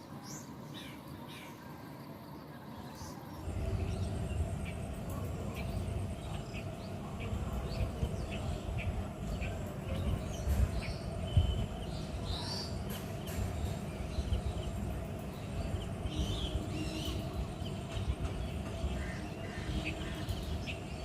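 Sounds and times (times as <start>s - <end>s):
birds chirping: 0.0s - 21.0s
low rumble: 3.4s - 12.4s.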